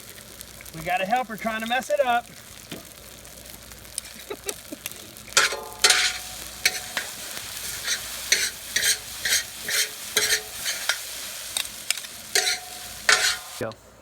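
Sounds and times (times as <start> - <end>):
steady sizzle: 0.0 - 14.0
spatula scraping a wok: 5.3 - 13.6.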